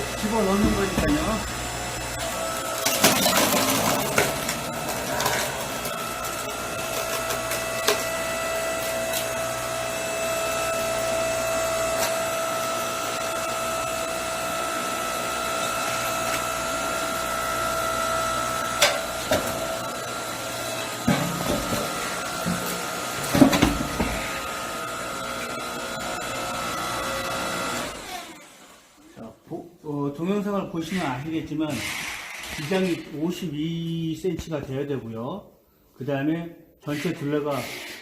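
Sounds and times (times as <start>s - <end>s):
log splitter whine and hum: 0.0s - 28.5s.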